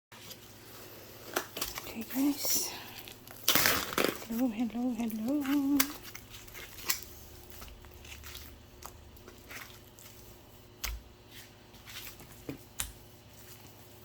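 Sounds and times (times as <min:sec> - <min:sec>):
squishy rustles: 0:00.2 - 0:14.0.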